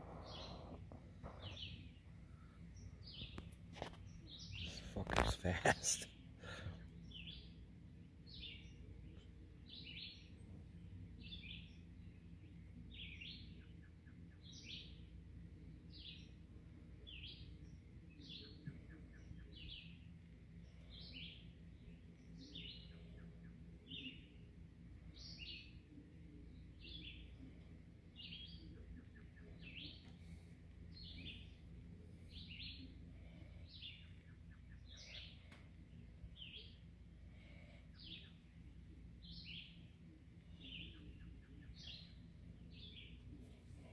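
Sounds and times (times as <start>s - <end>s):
bird chirping: 0.0s - 5.3s, 7.0s - 43.9s
low background rumble: 0.0s - 25.2s.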